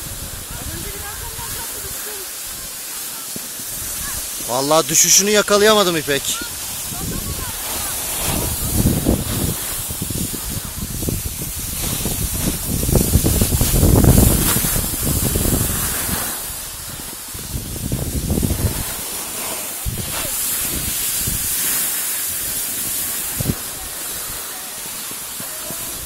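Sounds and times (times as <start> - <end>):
wind buffeting microphone: 0.0 - 2.6, 6.2 - 19.1, 19.8 - 21.7, 22.3 - 24.4.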